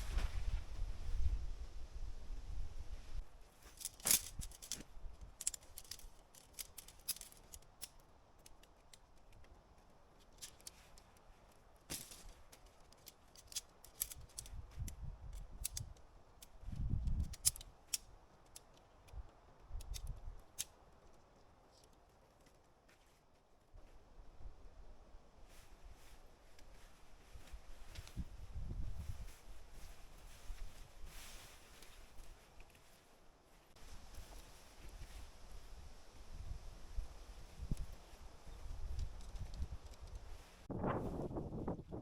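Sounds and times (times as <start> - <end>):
wind rumble on microphone: 0.0 - 3.3, 14.2 - 16.0, 16.6 - 17.6, 27.2 - 31.2, 33.8 - 42.0
camping gear clicking: 3.5 - 23.3.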